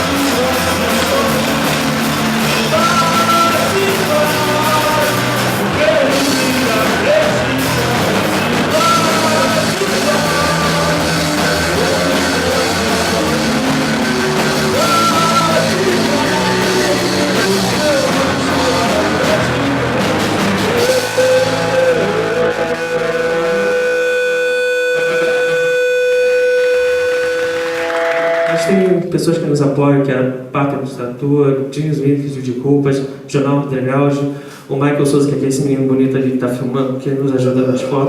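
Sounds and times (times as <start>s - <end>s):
person singing: 0.0s - 27.6s
live rock band playing: 0.0s - 29.1s
held electric guitar tone: 0.0s - 29.2s.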